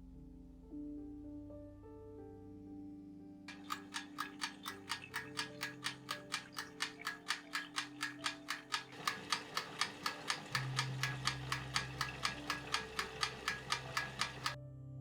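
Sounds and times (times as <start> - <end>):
watch ticking: 3.5 - 14.6.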